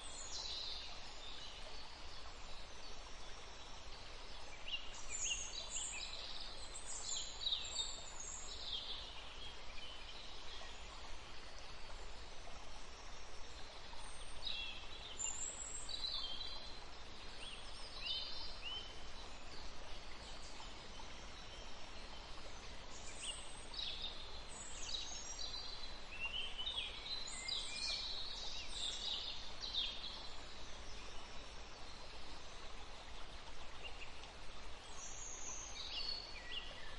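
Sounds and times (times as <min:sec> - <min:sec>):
steady background hiss: 0:00.0 - 0:36.9.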